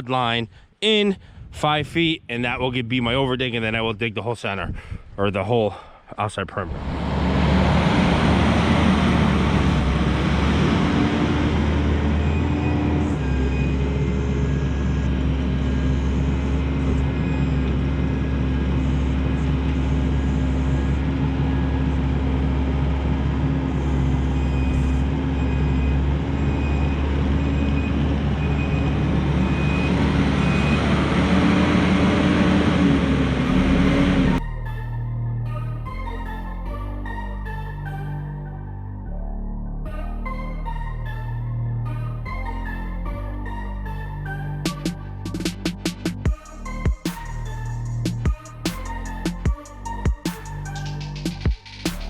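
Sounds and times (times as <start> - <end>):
diesel engine running: 6.6 - 36.2, 41.7 - 52.0.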